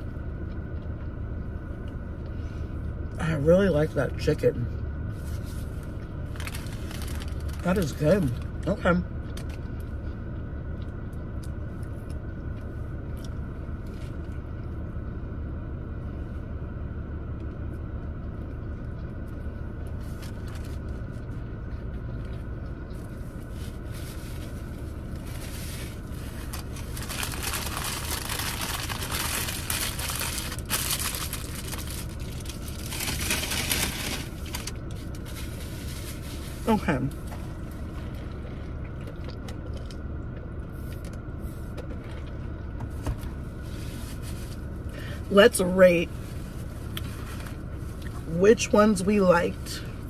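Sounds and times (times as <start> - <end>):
low rumble: 4.6 - 50.0
chewing and crunching crispy food: 5.4 - 14.8, 17.4 - 36.2, 37.2 - 41.2.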